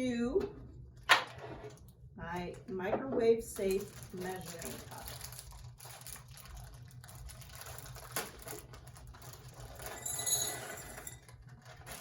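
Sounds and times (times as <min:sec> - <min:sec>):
chocolate chips clattering into a cup: 0:09.3 - 0:12.0.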